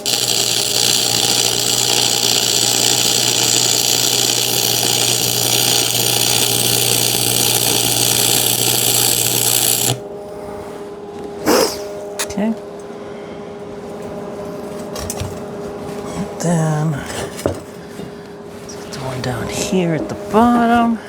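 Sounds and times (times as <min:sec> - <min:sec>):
arc welding crackling sizzle: 0:00.0 - 0:10.1
electrical hum: 0:00.0 - 0:21.0.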